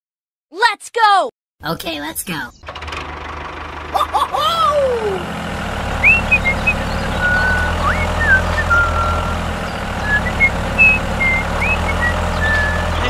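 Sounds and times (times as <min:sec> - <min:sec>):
tractor engine droning: 0:02.5 - 0:13.0
high chirps and whistles: 0:06.0 - 0:13.0.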